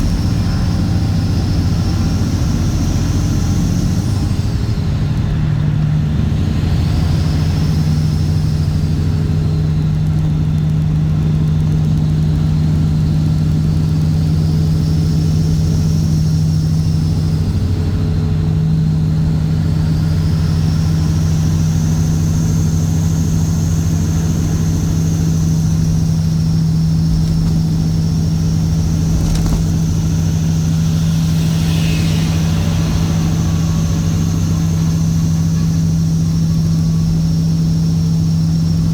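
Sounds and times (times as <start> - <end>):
faint high whistle: 0.0 - 4.9, 29.7 - 38.9
diesel truck engine droning: 0.0 - 38.9.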